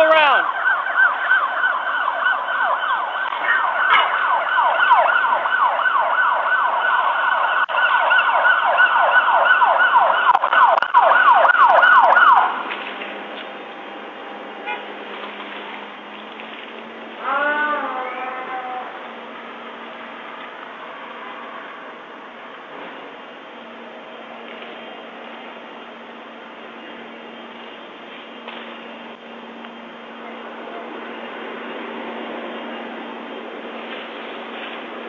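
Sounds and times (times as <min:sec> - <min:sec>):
emergency siren yelping: 0:00.0 - 0:12.8
traffic and street noise: 0:00.0 - 0:35.0.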